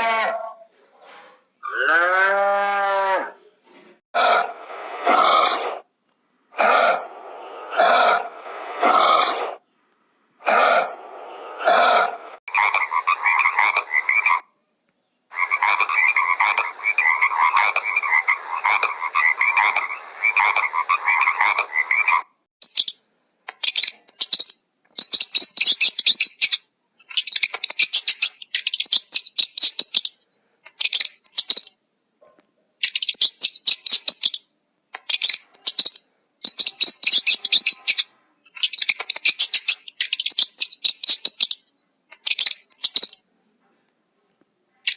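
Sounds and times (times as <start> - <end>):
fast pulsed animal calls: 6.6 - 9.6.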